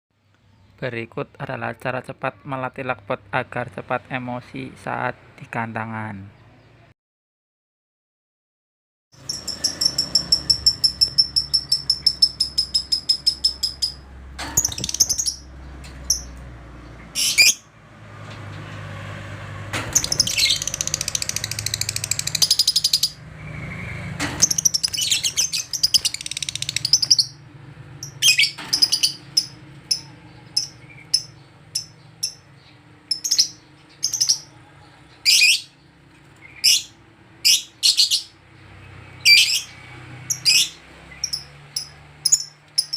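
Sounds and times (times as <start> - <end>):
bird chattering: 9.2 - 14.0, 20.0 - 23.2, 24.4 - 27.4, 28.0 - 34.6
bird chirping: 9.2 - 17.7, 19.9 - 42.9.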